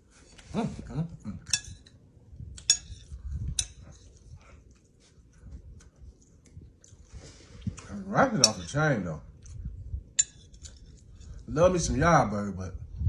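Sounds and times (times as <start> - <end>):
soft chewing: 0.0 - 11.9
cutlery clinking on a plate: 1.4 - 2.0, 2.6 - 3.8, 8.4 - 8.8, 10.2 - 10.8.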